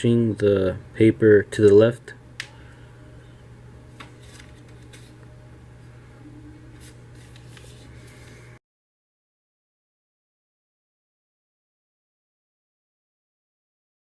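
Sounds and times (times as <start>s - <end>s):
low hum: 0.2s - 8.6s
paper rustling and crackling: 3.9s - 5.2s, 6.7s - 8.4s.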